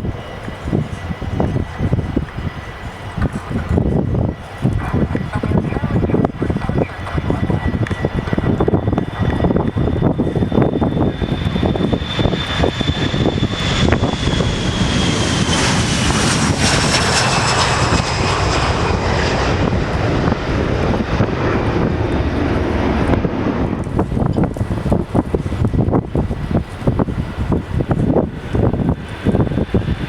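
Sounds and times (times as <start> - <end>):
jet airliner passing: 0.0 - 30.0
wind rumbling on microphone: 0.0 - 30.0.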